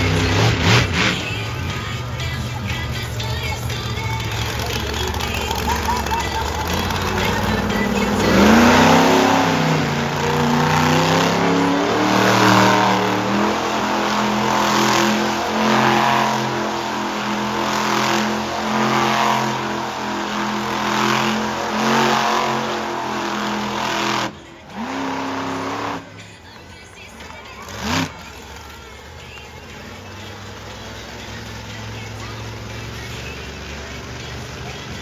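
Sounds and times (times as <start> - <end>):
monster truck engine revving: 0.0 - 35.0.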